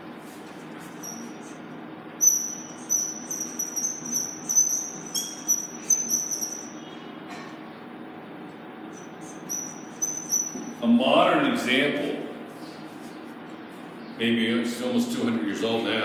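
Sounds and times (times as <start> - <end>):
steady low hum: 0.0 - 16.0
short high-pitched squeaks: 0.8 - 7.0, 8.9 - 10.8.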